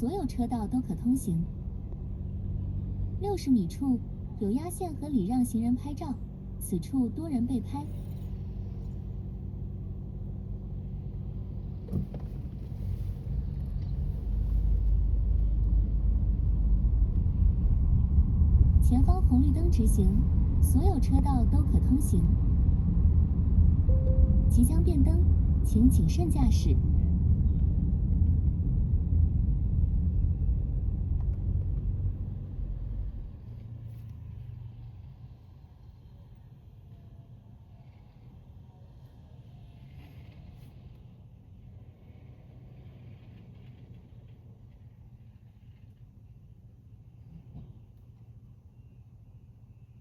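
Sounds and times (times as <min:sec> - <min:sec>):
car engine hum from inside: 0:00.0 - 0:39.4
low rumble: 0:07.4 - 0:33.9.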